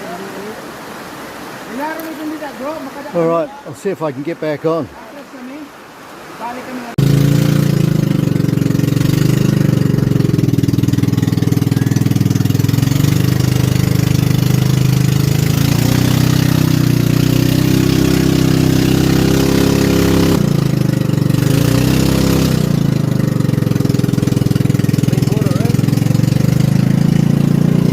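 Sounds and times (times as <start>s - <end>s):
small boat motor running: 7.0s - 27.9s.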